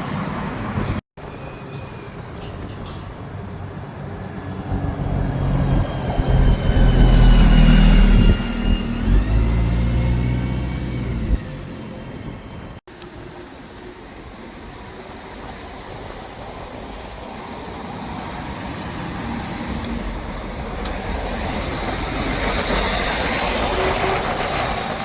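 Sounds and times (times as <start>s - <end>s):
diesel coach engine passing: 3.8s - 12.8s, 17.9s - 25.0s
high whine rising in pitch: 4.5s - 12.0s.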